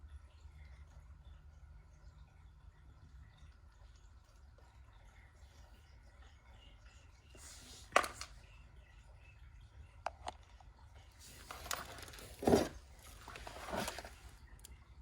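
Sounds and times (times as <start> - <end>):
scraping rustle: 11.2 - 14.4.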